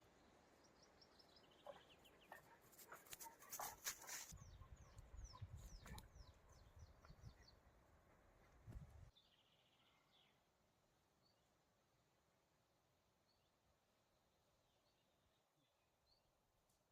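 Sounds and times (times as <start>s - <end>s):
small birds chirping and trilling: 0.1s - 7.7s.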